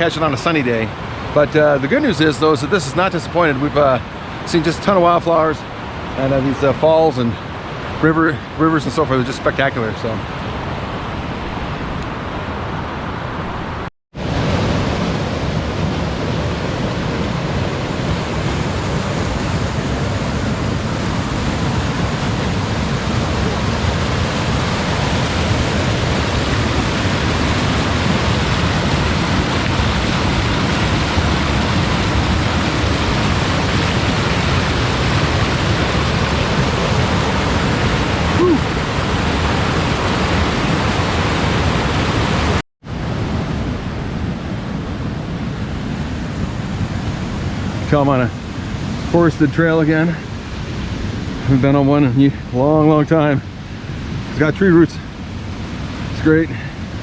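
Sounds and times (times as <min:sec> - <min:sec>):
waterfall rushing: 0:00.0 - 0:42.6.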